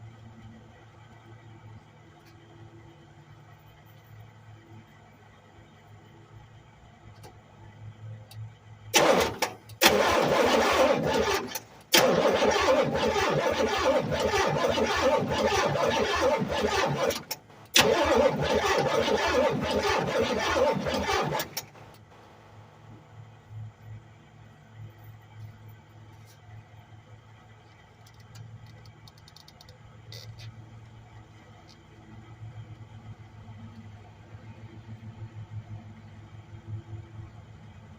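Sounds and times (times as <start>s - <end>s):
car engine starter cranking: 9.0s - 22.5s.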